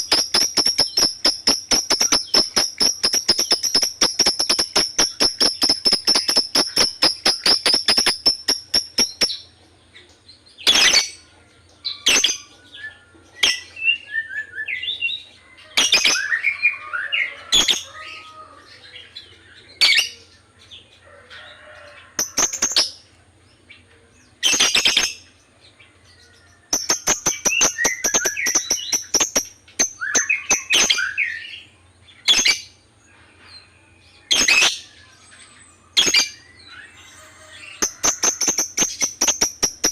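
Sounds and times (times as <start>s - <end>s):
soft bird twittering: 0.0s - 9.6s
lovebirds chirping: 0.0s - 39.9s
sharp bird calls: 0.0s - 39.9s.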